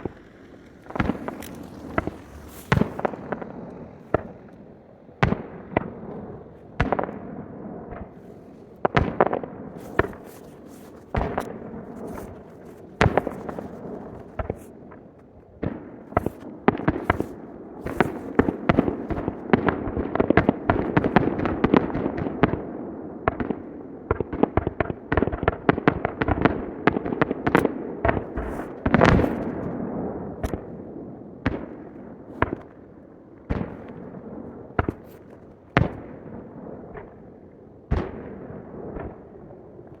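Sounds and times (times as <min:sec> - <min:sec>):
fireworks crackle: 0:00.0 - 0:07.1, 0:08.0 - 0:21.5, 0:28.4 - 0:29.7.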